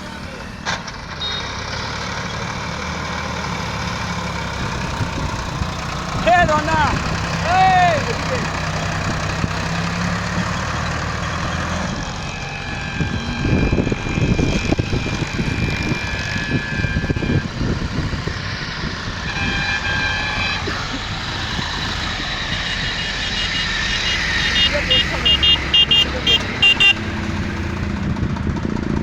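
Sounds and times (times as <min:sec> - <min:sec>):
vehicle engine idling: 0:00.0 - 0:29.0
high-pitched tones: 0:19.1 - 0:27.8.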